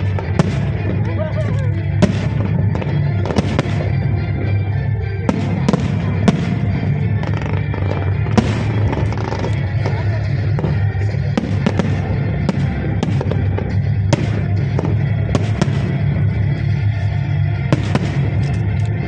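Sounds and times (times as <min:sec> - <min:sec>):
fireworks banging: 0:00.0 - 0:19.0
show music with heavy bass: 0:00.0 - 0:19.0.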